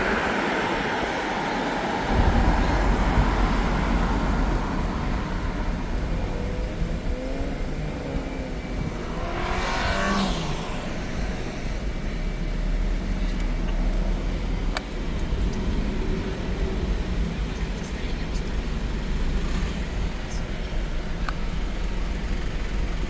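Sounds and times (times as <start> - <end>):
vehicle passing by: 0.0 - 13.5
car engine and road noise: 0.0 - 23.0.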